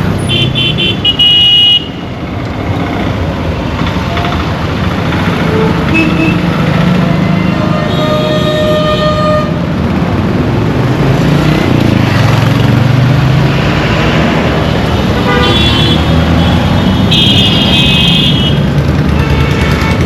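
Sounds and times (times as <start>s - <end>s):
horns honking: 0.2s - 2.0s, 5.4s - 9.7s, 15.1s - 20.0s.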